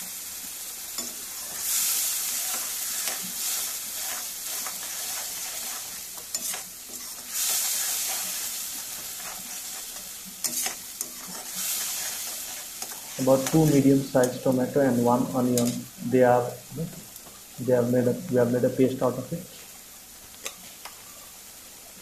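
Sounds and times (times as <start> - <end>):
paste sizzling in hot oil: 0.0 - 22.0
metal spatula scraping a pan: 1.0 - 14.4.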